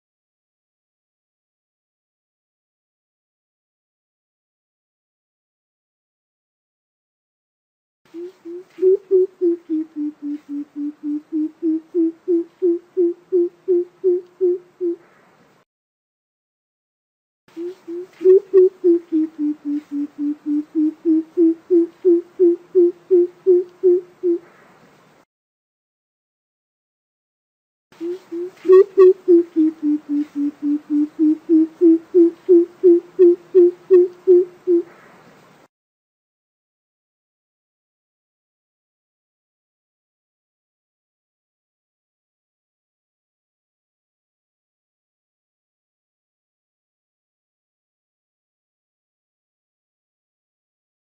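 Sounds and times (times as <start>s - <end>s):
bird giving deep hollow hoots: 8.1s - 15.0s, 17.6s - 24.5s, 28.0s - 35.0s.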